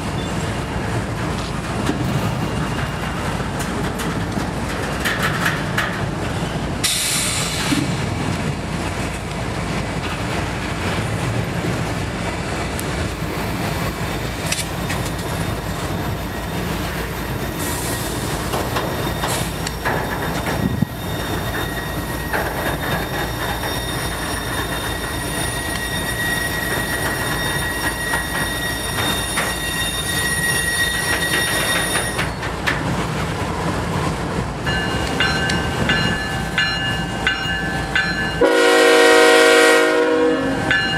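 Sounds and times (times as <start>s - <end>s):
diesel locomotives: 0.0s - 40.9s
freight train rumbling and clattering: 0.0s - 40.9s
high-pitched wheel squeal: 15.3s - 32.4s.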